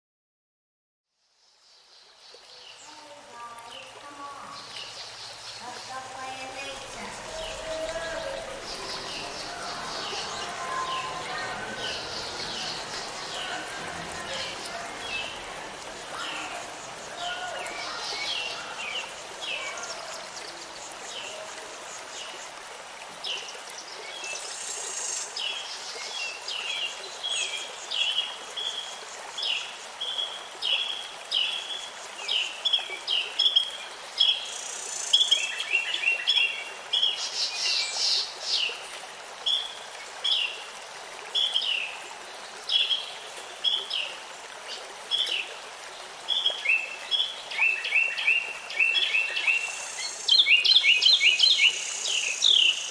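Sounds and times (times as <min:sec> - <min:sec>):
birds chirping: 0:02.4 - 0:22.4.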